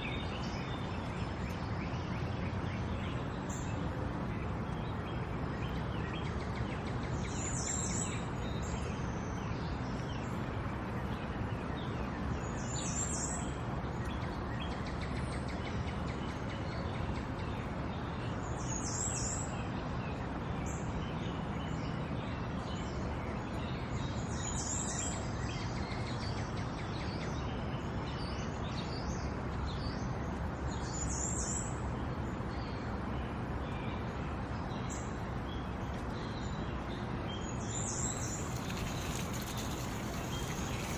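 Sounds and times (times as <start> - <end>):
birds chirping: 32.6 - 40.9
running water: 38.0 - 40.9.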